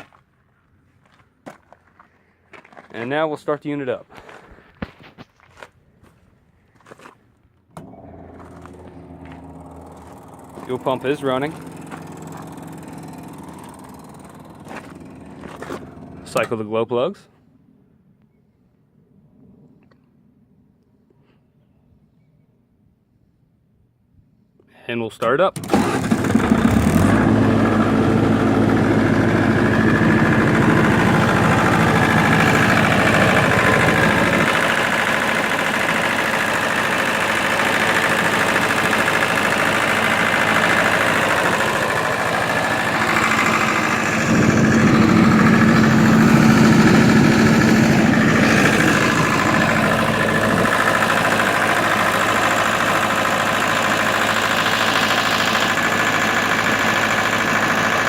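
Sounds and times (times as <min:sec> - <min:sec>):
diesel generator running: 0:05.5 - 0:16.9, 0:25.6 - 0:58.0.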